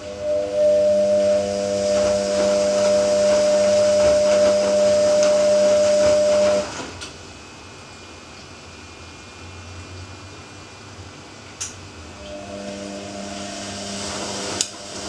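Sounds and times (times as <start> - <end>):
low steady hum: 0.0 - 6.8
rushing noise: 0.0 - 7.0
washing machine motor hum: 0.0 - 15.0.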